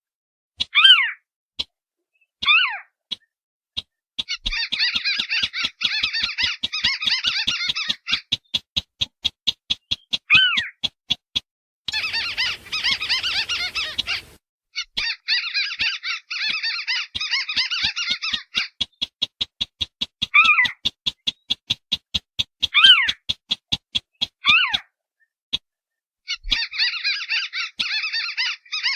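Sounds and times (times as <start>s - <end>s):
downward-slurred bird calls: 2.4s - 8.6s, 11.9s - 19.1s, 26.3s - 28.9s
rapid ticking bird notes: 2.4s - 25.7s
dense bird chattering: 3.9s - 8.6s, 11.9s - 19.6s.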